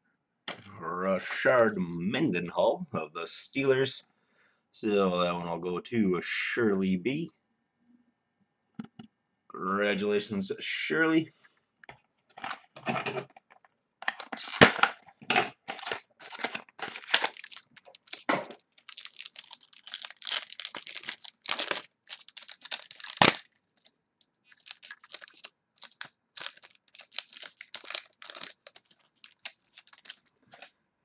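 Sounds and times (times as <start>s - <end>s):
wrapper tearing and crinkling: 14.0s - 30.7s
sharp wrapper snaps: 16.9s - 23.9s.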